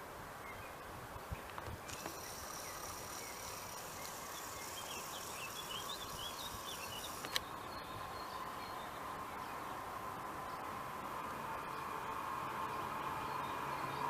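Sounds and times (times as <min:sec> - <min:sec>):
small bird chirping: 0:01.8 - 0:09.6
sharp click: 0:07.0 - 0:07.5.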